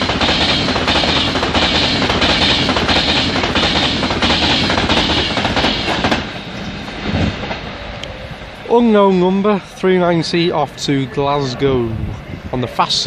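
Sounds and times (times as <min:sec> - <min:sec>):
wheels clacking over rail joints: 0:00.0 - 0:08.2
electric train passing: 0:00.0 - 0:13.0.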